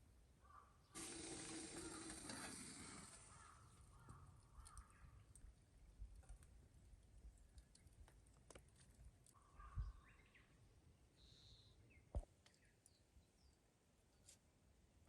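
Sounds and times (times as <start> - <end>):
faint bird calls: 0.4 - 5.4, 9.4 - 10.6, 11.2 - 12.0
small clicks: 4.0 - 5.5.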